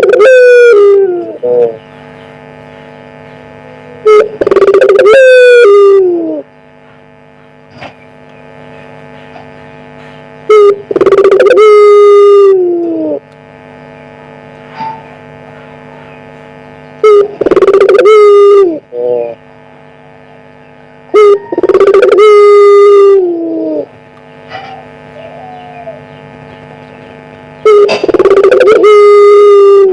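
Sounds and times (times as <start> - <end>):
dove cooing: 0.0 - 1.8, 3.8 - 6.5, 10.5 - 13.3, 17.0 - 19.4, 21.1 - 29.9
steady hum: 0.0 - 29.9.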